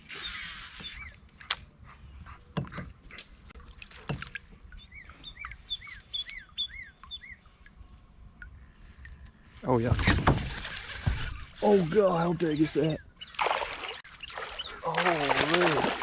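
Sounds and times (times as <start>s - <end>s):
low outdoor background: 0.0s - 16.0s
bird chirping: 4.7s - 7.6s, 12.0s - 15.3s.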